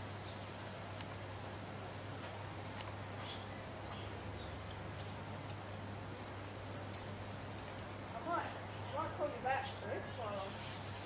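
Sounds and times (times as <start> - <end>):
low steady hum: 0.0 - 11.0
high bird chirps: 5.6 - 7.8.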